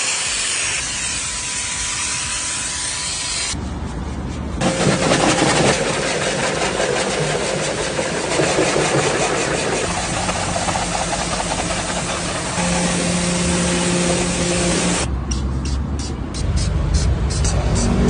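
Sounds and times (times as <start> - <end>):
machine humming: 4.6 - 15.1
steady tone: 11.3 - 15.1
high-pressure spray hissing: 12.1 - 15.1.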